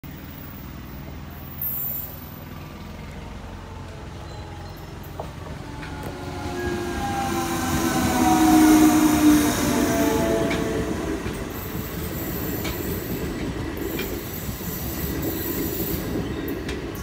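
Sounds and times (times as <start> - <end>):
electric locomotive rumble: 0.0 - 17.0.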